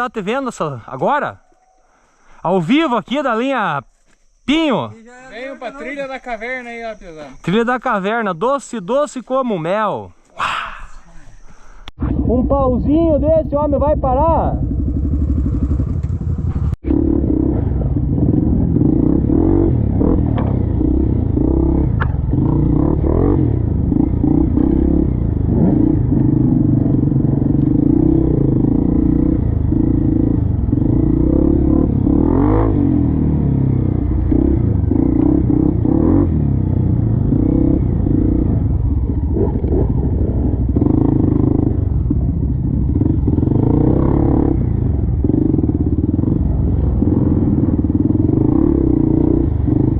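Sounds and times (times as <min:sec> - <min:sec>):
motorcycle engine revving: 0:12.0 - 0:49.9.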